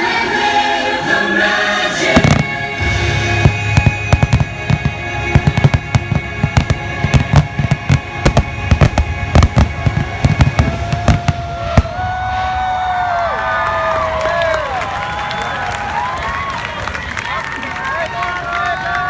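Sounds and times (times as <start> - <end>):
held music chord: 0.0 - 10.8
fireworks whistles: 2.0 - 12.6
fireworks bangs: 2.0 - 16.1.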